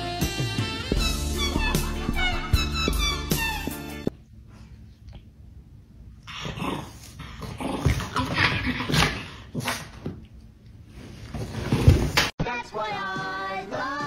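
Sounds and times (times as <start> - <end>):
small dog growling and barking: 6.2 - 10.0.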